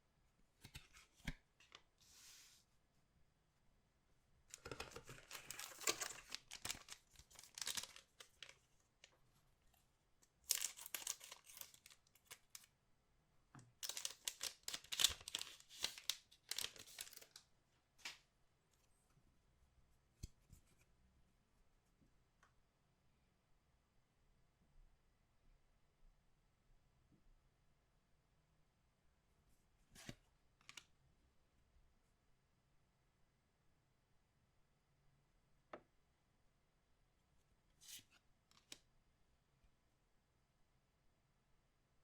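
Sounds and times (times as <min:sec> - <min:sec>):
packaging tearing and crinkling: 0:04.6 - 0:08.5, 0:10.5 - 0:12.7, 0:13.8 - 0:17.4.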